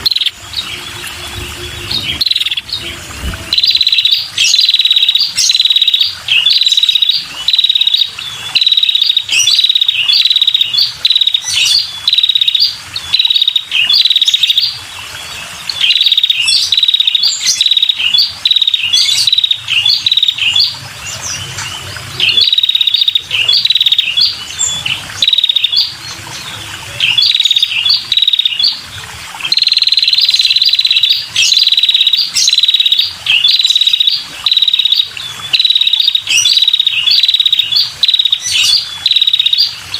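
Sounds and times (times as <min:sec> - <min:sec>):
bird chirping trills: 0:00.0 - 0:28.8.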